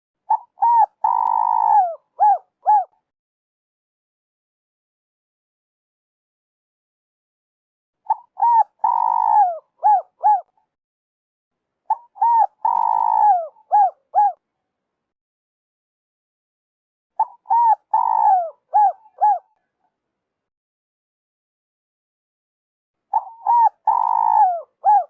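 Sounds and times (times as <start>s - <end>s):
dove cooing: 0.3s - 3.0s, 8.1s - 10.5s, 11.9s - 14.4s, 17.2s - 19.6s, 23.1s - 25.0s.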